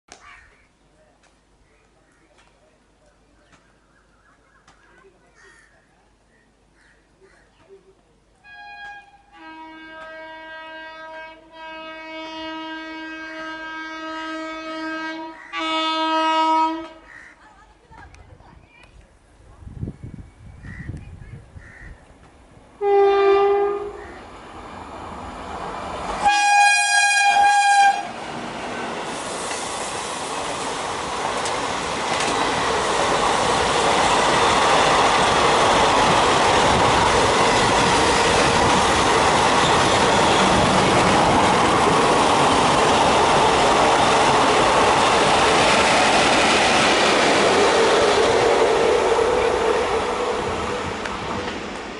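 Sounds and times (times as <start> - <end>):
electric locomotive horn: 8.4 - 17.0, 22.8 - 24.2, 26.2 - 28.2, 39.4 - 41.1, 47.4 - 51.0
train wheels rushing on track: 22.2 - 51.9.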